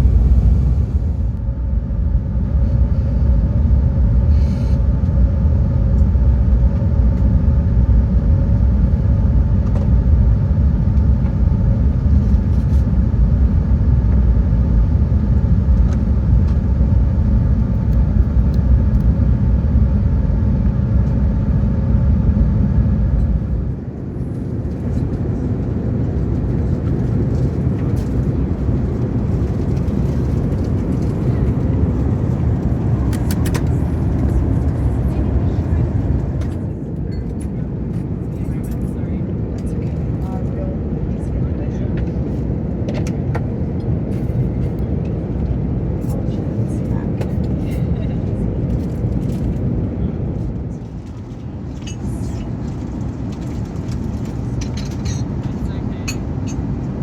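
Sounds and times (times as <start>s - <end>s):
quieter hum: 0.0s - 40.8s
aircraft cabin rumble: 0.0s - 57.0s
faint engine tones: 0.0s - 57.0s.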